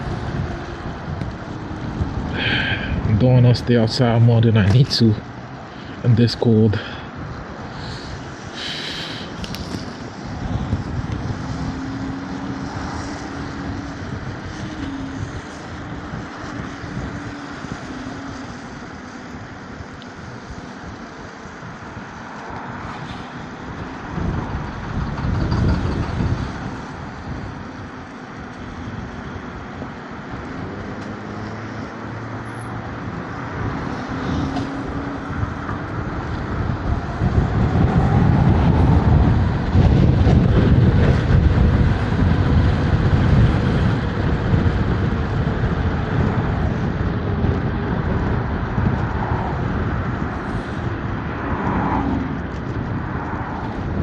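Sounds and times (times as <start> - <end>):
passing traffic: 0.0 - 54.0
wind rush on microphone: 0.0 - 54.0.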